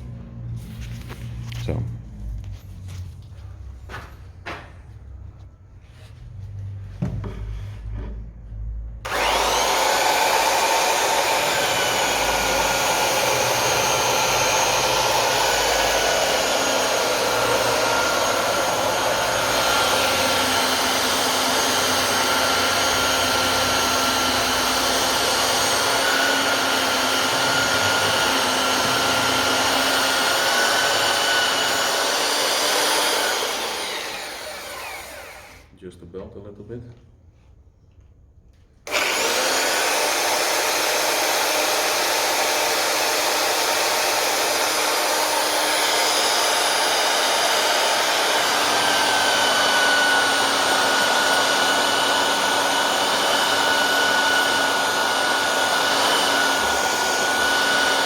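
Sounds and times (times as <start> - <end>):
belt sander sanding wood: 9.1 - 35.6, 38.9 - 58.0.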